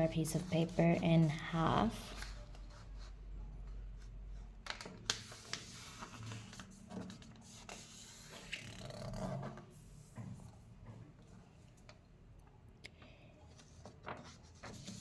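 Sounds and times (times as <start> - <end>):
paper rustling and creasing: 4.0 - 9.6.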